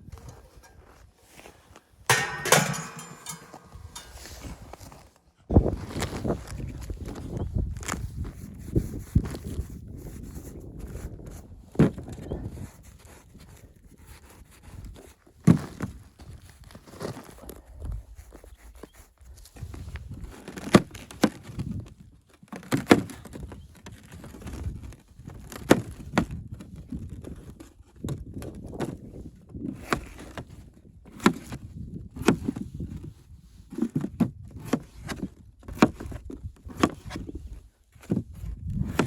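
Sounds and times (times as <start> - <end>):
low rumbling handling noise: 2.1 - 4.9.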